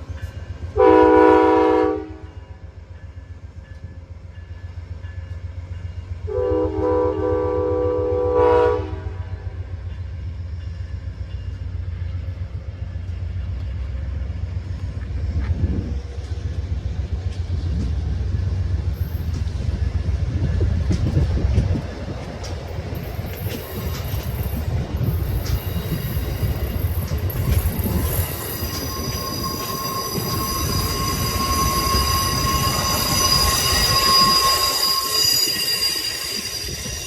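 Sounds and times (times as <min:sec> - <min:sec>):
diesel locomotive rumbling: 0:00.0 - 0:37.0
train horn blast: 0:00.8 - 0:02.4, 0:06.3 - 0:09.6.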